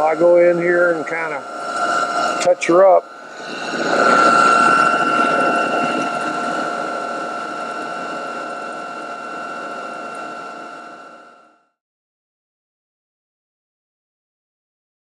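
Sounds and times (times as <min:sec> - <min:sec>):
rough cutting noise: 0:00.0 - 0:10.2
rotary power tool whining: 0:00.0 - 0:11.7.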